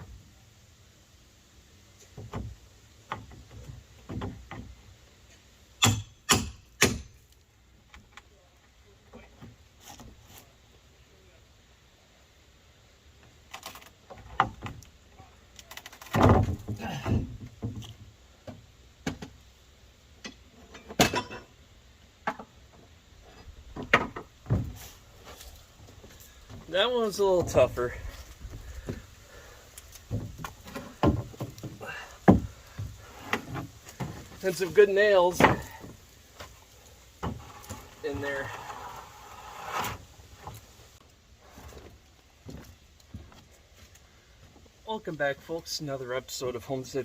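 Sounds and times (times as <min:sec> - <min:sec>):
deck boards being pried up: 0:02.1 - 0:04.9, 0:15.6 - 0:19.4, 0:22.2 - 0:40.8.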